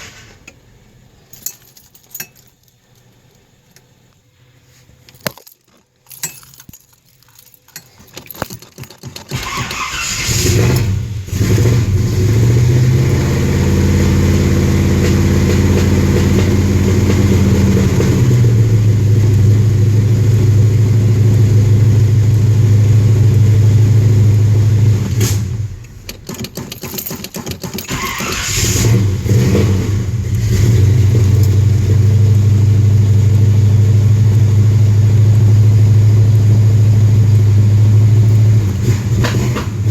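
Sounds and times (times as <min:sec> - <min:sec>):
engine cranking: 0:05.1 - 0:32.8
car engine revving and idling: 0:09.3 - 0:26.0, 0:27.8 - 0:39.9.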